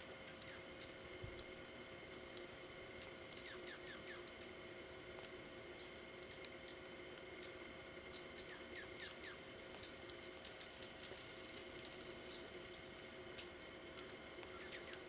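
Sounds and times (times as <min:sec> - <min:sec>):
steady hiss and hum: 0:00.0 - 0:15.0
small birds high chirps: 0:00.2 - 0:01.0, 0:03.0 - 0:04.6, 0:07.4 - 0:10.0, 0:12.2 - 0:12.6, 0:14.4 - 0:15.0.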